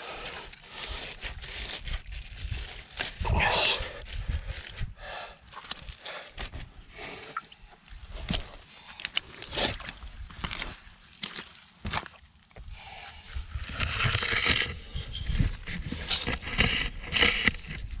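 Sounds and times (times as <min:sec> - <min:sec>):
knocks and scrapes: 0:13.5 - 0:18.0.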